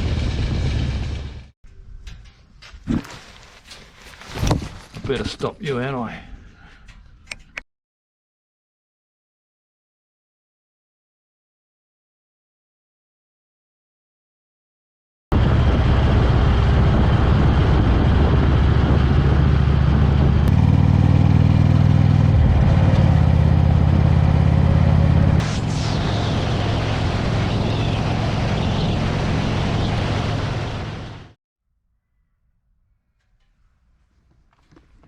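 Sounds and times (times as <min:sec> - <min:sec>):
road and wind noise: 0:15.3 - 0:31.4
motorcycle engine running: 0:15.4 - 0:31.3.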